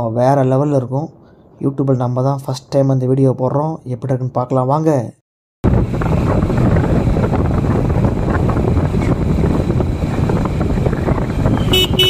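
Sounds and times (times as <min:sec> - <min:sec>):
wind buffeting microphone: 0:05.6 - 0:12.0
motorcycle engine: 0:05.7 - 0:12.0
road noise: 0:05.7 - 0:12.0.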